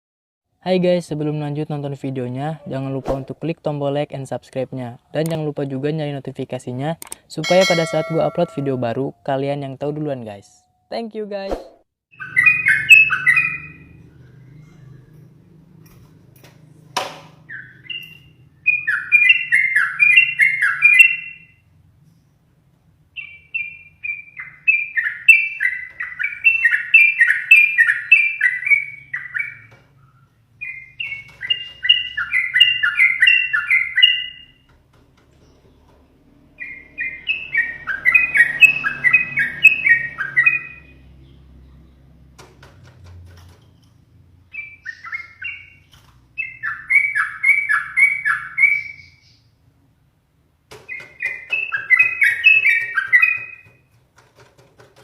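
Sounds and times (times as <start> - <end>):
bird chattering song: 7.5 - 9.0, 12.1 - 14.9, 17.4 - 21.6, 23.1 - 34.7, 36.6 - 42.2, 44.5 - 49.6, 50.7 - 53.9.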